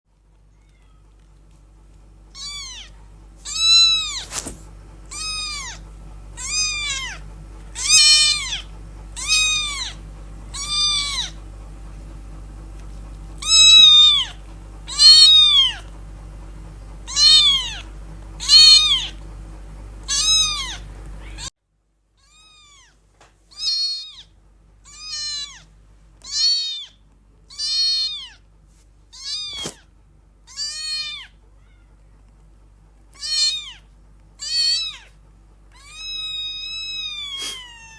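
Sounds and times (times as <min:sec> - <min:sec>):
kitten meowing: 0:02.3 - 0:11.4, 0:13.4 - 0:15.9, 0:17.1 - 0:19.2, 0:20.0 - 0:21.5, 0:22.2 - 0:28.4, 0:29.1 - 0:29.9, 0:30.5 - 0:32.0, 0:33.1 - 0:37.9.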